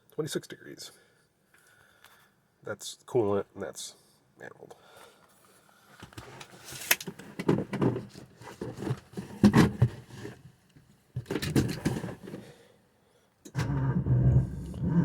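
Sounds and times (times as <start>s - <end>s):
engine cranking and starting: 13.5s - 15.0s.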